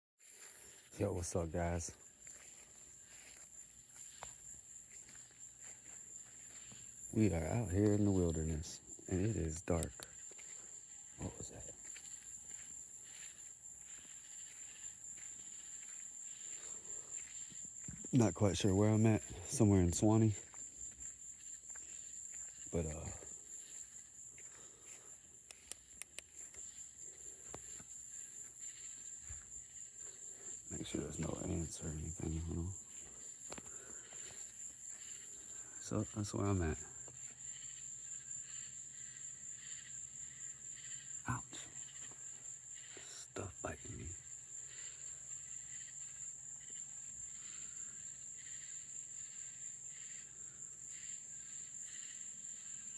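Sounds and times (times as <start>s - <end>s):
crickets trilling: 0.2s - 52.9s
soft pulsing insect call: 0.2s - 52.9s
sharp clicks: 9.7s - 10.1s, 25.4s - 26.3s.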